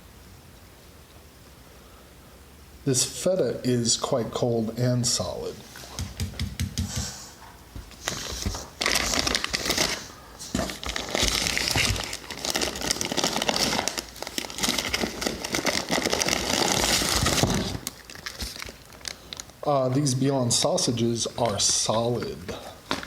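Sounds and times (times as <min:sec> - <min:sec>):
plastic packaging crinkling: 0:07.9 - 0:23.0.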